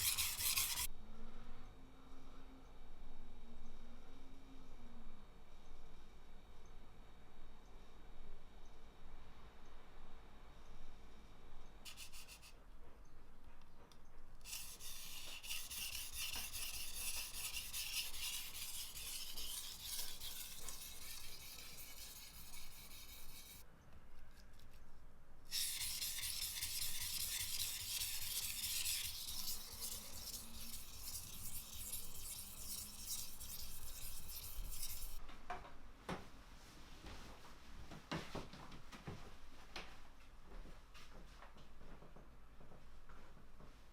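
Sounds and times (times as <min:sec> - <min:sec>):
knife scraping on whetstone: 0:00.0 - 0:00.9, 0:14.5 - 0:23.6, 0:25.5 - 0:35.2.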